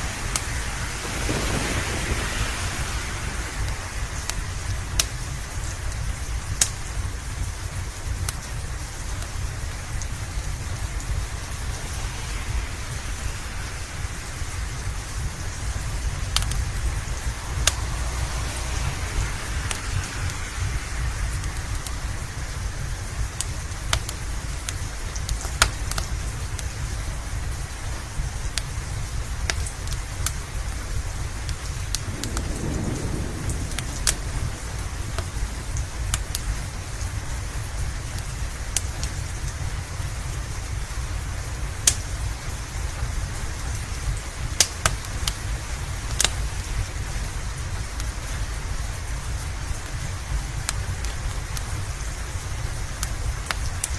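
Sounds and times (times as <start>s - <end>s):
low rumble: 0.0s - 25.0s, 30.4s - 38.7s
steady rain: 0.0s - 53.9s
wood fire crackles: 0.0s - 53.9s.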